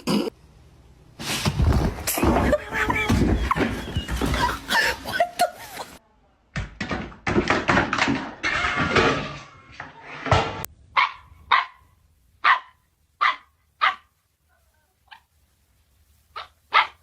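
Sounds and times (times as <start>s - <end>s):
dog barking: 11.0s - 14.1s, 16.4s - 17.0s.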